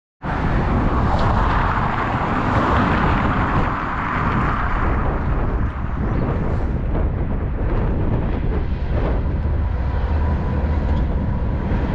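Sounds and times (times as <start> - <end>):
wind buffeting microphone: 0.2 - 11.9
freight train rumbling: 0.3 - 11.9.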